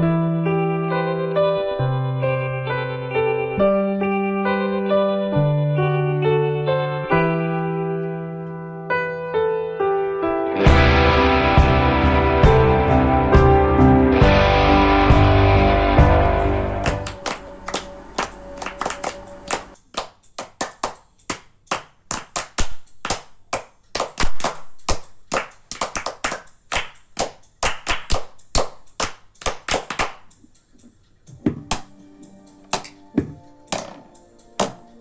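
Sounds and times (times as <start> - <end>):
rubber-band guitar twang: 10.6 - 19.7
hands clapping: 16.2 - 30.3, 32.7 - 34.0, 34.6 - 34.9.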